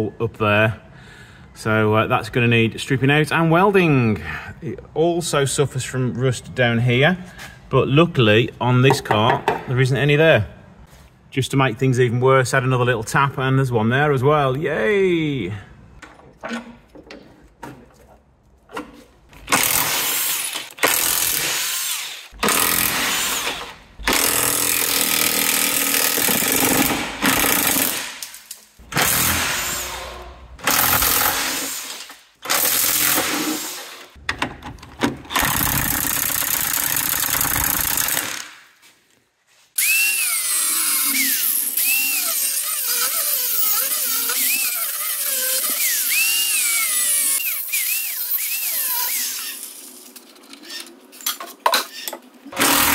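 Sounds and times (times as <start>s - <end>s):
power tool working on bolts: 19.4s - 28.2s, 28.9s - 34.1s, 35.3s - 38.5s, 39.8s - 49.9s, 52.0s - 52.9s.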